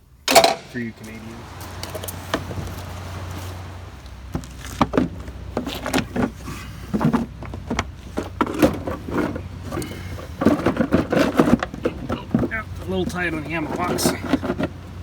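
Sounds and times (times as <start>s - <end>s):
metal parts clanking and scraping: 0.3s - 0.8s, 4.4s - 15.0s.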